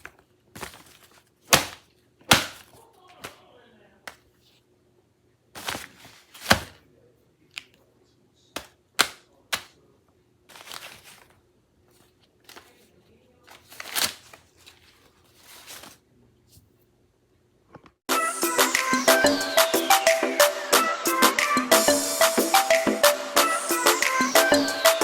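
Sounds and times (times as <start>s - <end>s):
paper crumpling and tearing: 0.0s - 3.3s, 5.6s - 6.8s, 10.5s - 16.0s.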